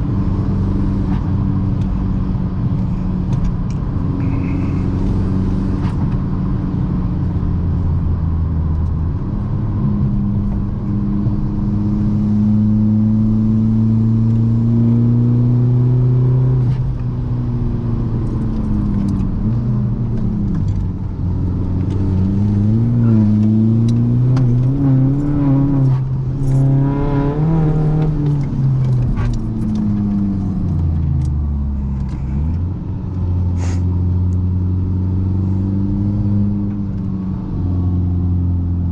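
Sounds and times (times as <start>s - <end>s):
diesel car engine revving: 0.0s - 38.9s.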